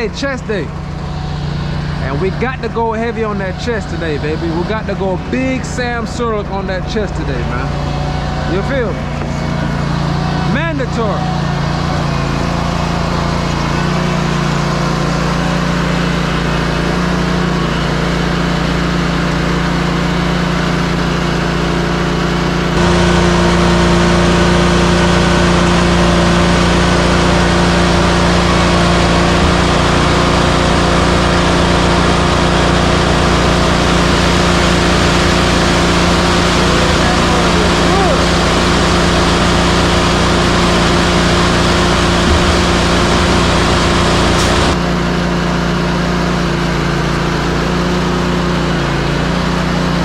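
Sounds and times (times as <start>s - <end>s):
diesel truck engine running: 0.0s - 50.0s.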